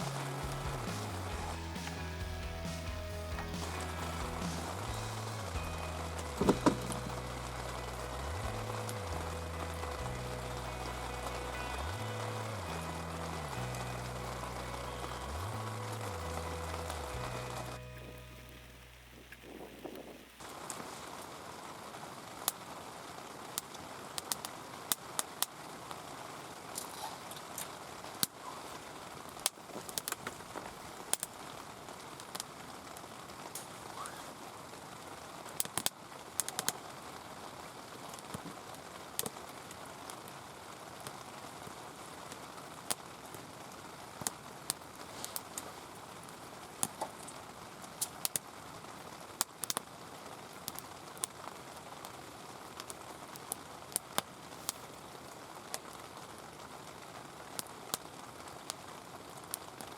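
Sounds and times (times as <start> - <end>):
heavy rain hissing: 0.0 - 57.6.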